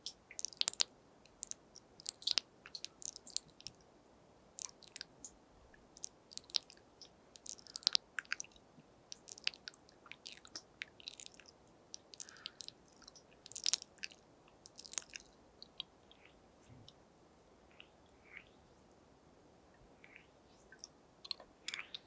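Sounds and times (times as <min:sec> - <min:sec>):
wet mouth clicks and pops: 0:00.1 - 0:03.8, 0:04.6 - 0:05.1, 0:06.0 - 0:06.8, 0:07.4 - 0:15.2.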